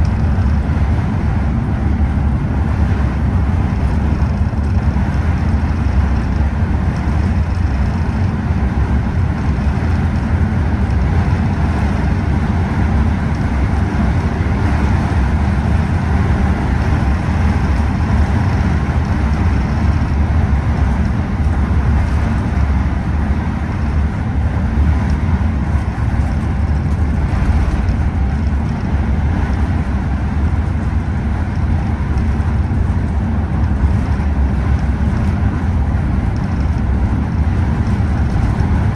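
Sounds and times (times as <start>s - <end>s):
coach engine rumble: 0.0s - 38.9s
road noise: 0.0s - 38.9s.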